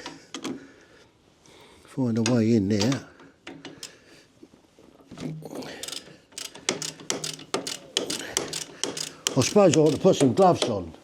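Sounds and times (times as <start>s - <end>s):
socket ratchet clicking: 5.8s - 10.6s.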